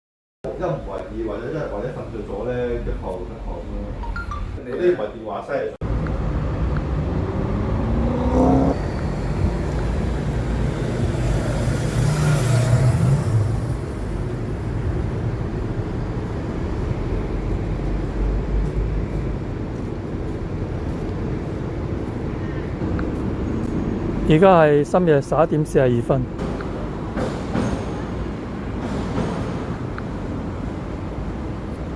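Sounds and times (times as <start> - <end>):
road traffic: 0.5 - 4.6, 5.8 - 31.9
vehicle engine revving up: 5.8 - 14.1
car passing close by: 5.8 - 14.5.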